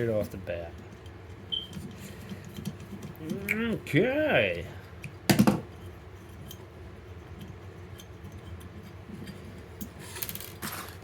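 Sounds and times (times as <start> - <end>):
low steady background hum: 0.0 - 11.0
small parts clattering: 9.2 - 11.0.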